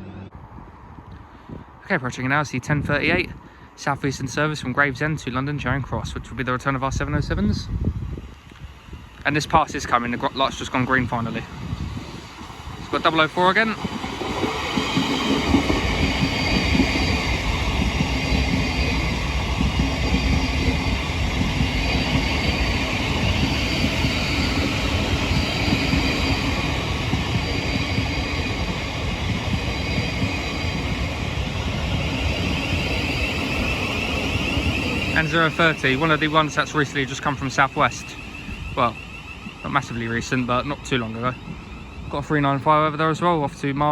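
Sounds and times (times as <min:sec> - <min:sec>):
train wheels rumbling on track: 0:00.0 - 0:43.9
traction motor whine: 0:14.0 - 0:43.1.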